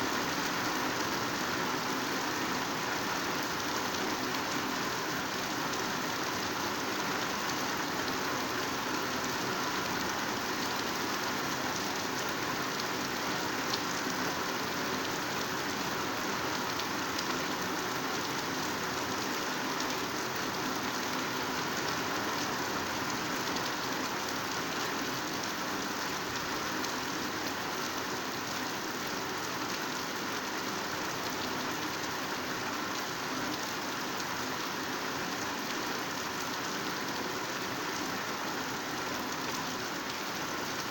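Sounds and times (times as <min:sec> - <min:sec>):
heavy rain on foliage: 0:00.0 - 0:40.9.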